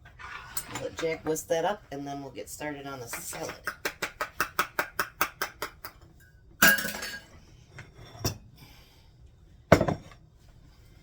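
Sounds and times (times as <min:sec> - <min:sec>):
dishes clinking and knocking: 0:03.3 - 0:08.4, 0:09.7 - 0:10.2.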